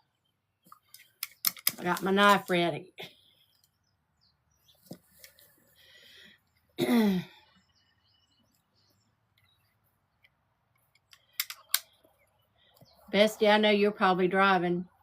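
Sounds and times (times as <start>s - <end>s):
sharp clicks: 0.7s - 2.6s, 10.2s - 12.2s.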